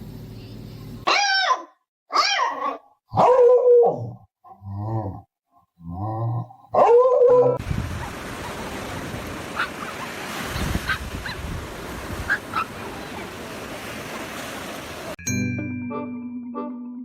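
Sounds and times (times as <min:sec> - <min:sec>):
dog barking and howling: 0:01.1 - 0:04.2, 0:06.7 - 0:08.6, 0:09.5 - 0:11.4, 0:12.2 - 0:13.4.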